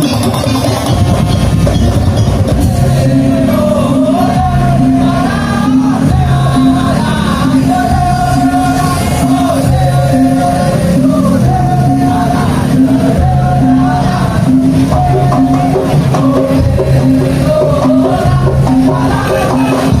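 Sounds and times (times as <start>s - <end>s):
percussion band playing: 0.0s - 20.0s
wavering melody line: 0.0s - 20.0s
people shouting: 2.8s - 16.0s.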